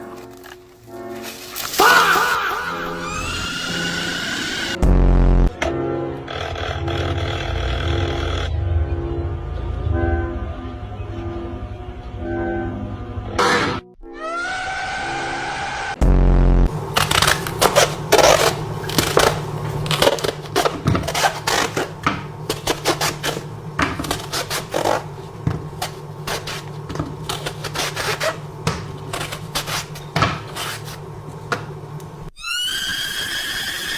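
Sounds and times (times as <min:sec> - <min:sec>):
rising squeal: 0:02.8 - 0:04.8, 0:06.3 - 0:13.2, 0:14.0 - 0:16.0, 0:32.3 - 0:33.9
steady low hum: 0:16.0 - 0:32.3.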